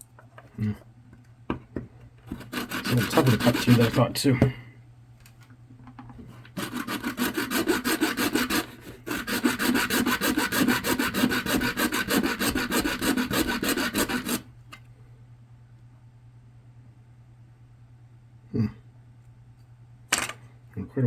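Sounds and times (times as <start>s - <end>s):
hacksaw cutting plastic: 2.3s - 4.1s, 6.6s - 14.5s.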